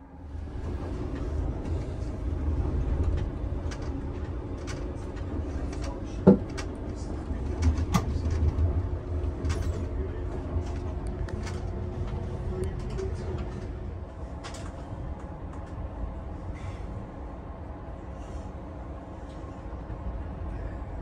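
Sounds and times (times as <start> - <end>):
train running rumble: 0.0 - 21.0.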